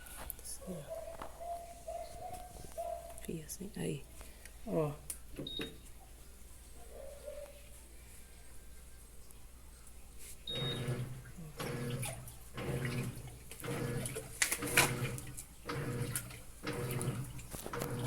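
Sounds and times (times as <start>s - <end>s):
washing machine motor humming: 10.5s - 18.0s
water sloshing in drum: 10.5s - 18.0s.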